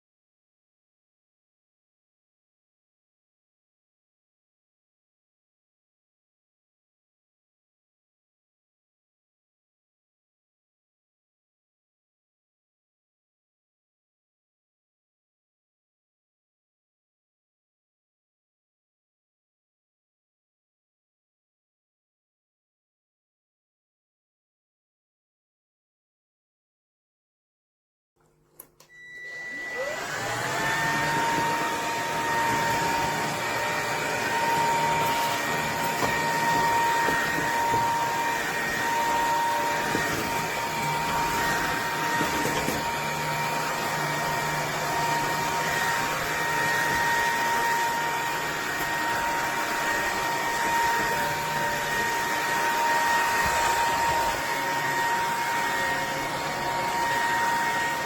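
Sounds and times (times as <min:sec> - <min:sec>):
vacuum cleaner motor whining: 0:28.6 - 0:58.0.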